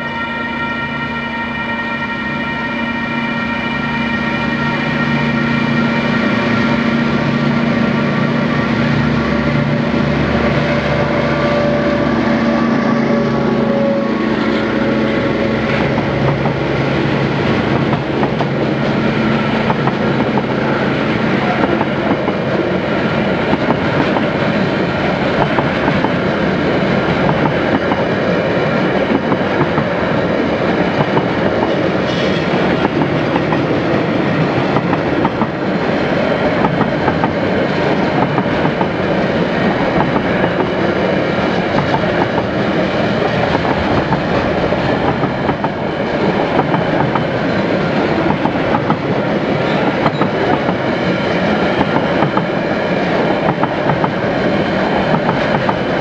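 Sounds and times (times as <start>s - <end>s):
train wheels clattering: 23.4s - 35.8s, 36.5s - 56.0s.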